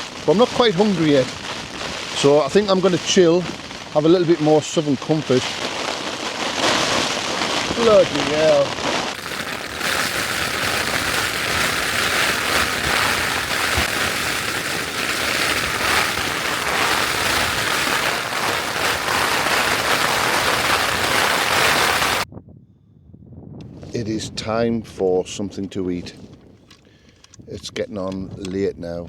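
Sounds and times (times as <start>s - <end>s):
heavy rain on tent fabric: 0.0s - 22.3s.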